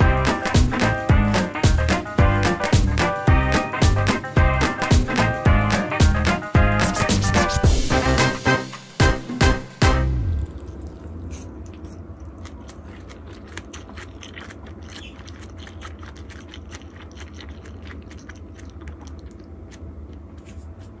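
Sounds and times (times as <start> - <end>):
steady low hum: 9.6 - 21.0
crunchy chewing: 10.4 - 20.3.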